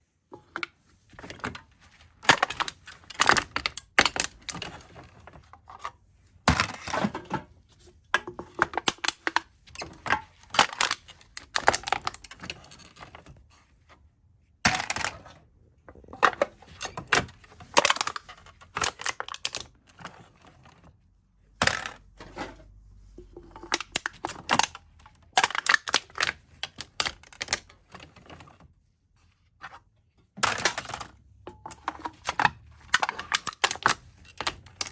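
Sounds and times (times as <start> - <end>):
aluminium cans being crushed: 2.2 - 4.9, 6.5 - 7.4, 8.2 - 12.9, 14.7 - 15.2, 16.0 - 19.7, 21.6 - 22.1, 23.6 - 27.7, 30.4 - 34.9.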